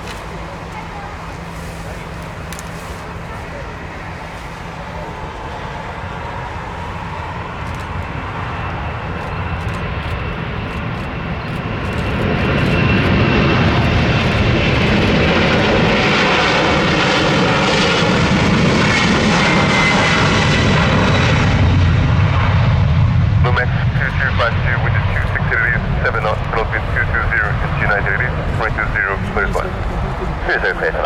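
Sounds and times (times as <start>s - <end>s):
jet engine roar: 0.0s - 31.0s.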